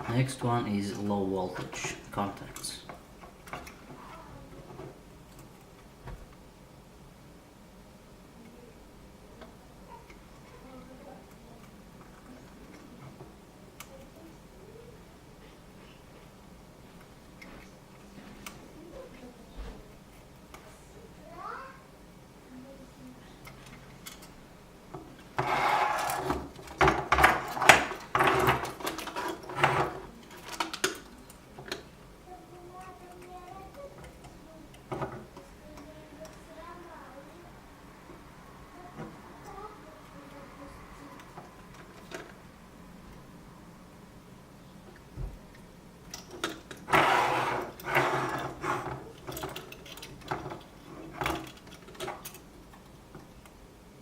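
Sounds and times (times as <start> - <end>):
rustling and scraping: 25.0 - 32.0, 46.3 - 52.5
scraping rubbing strokes: 25.4 - 26.4, 46.9 - 49.1.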